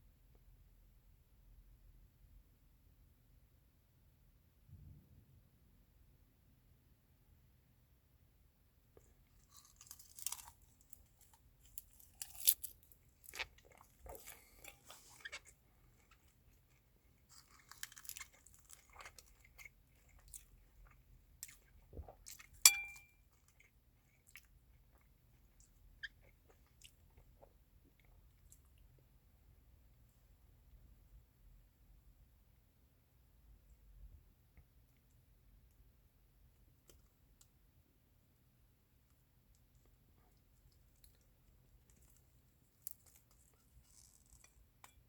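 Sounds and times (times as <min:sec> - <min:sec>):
person chewing and crunching food: 0:09.0 - 0:29.2, 0:39.1 - 0:45.0
sharp tap with ring: 0:22.7 - 0:23.1.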